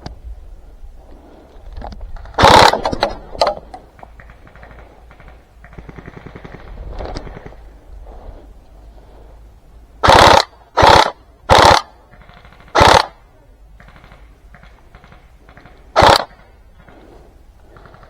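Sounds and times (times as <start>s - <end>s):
airsoft gun bursts: 2.3s - 7.7s, 10.0s - 17.1s.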